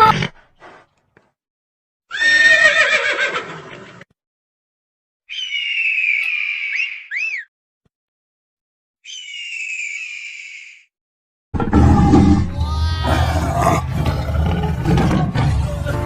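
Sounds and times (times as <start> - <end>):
horse whinnying: 2.1 - 4.0, 12.2 - 14.1.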